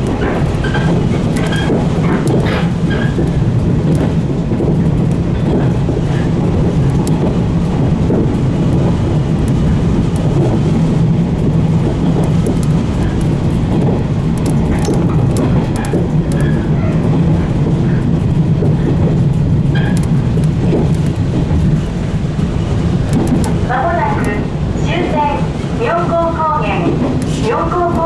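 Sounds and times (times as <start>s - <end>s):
rumble of train wheels on rail: 0.0s - 28.0s
high wheel squeaks: 0.1s - 5.1s, 14.4s - 17.4s, 19.7s - 25.4s.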